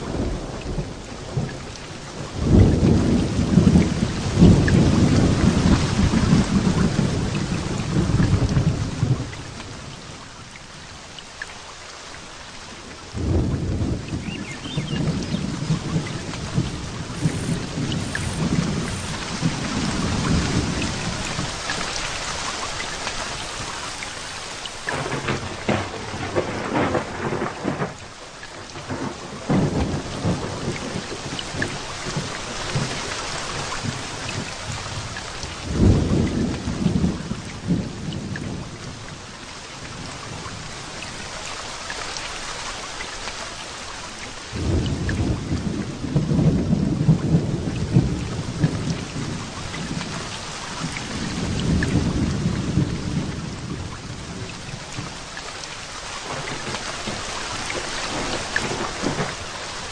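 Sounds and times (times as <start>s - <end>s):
thunder rumbling: 0.0s - 9.6s, 13.1s - 22.0s, 23.2s - 39.0s, 44.5s - 55.2s, 56.2s - 59.9s
heavy rain falling: 0.0s - 59.9s.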